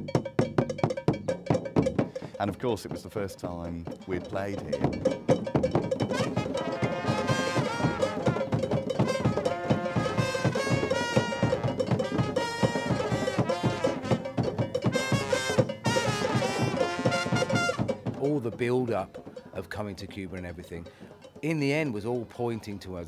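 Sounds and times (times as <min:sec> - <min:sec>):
fast hand drums and percussion: 0:00.0 - 0:23.0
horn playing a melody: 0:06.0 - 0:18.0.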